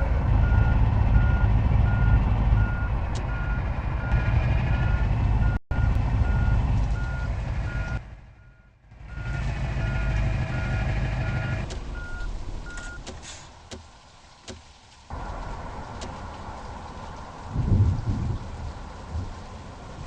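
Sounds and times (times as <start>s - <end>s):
truck engine rumble: 0.0s - 20.0s
truck reversing alarm beeping: 0.4s - 13.0s.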